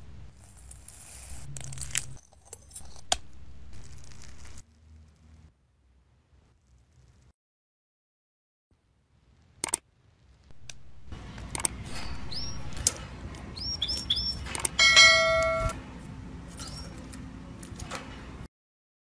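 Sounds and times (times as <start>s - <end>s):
sharp clicks: 9.6s - 9.8s, 11.4s - 13.0s
birds chirping: 12.0s - 12.8s, 13.4s - 15.6s
bell-like ring: 14.8s - 15.8s.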